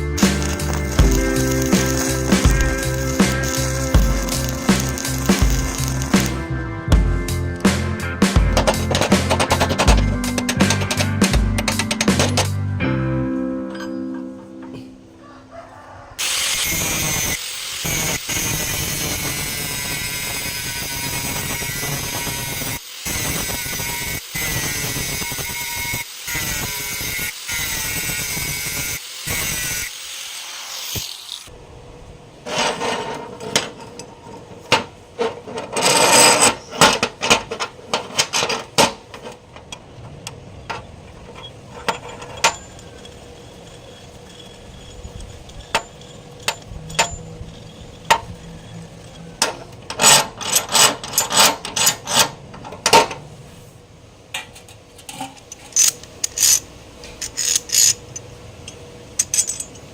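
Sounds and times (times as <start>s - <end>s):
background music: 0.0s - 15.2s
scraping and rubbing on metal: 0.2s - 6.4s, 8.6s - 12.6s, 32.4s - 53.8s, 54.4s - 59.9s
tool clicks and knocks: 8.6s - 12.6s.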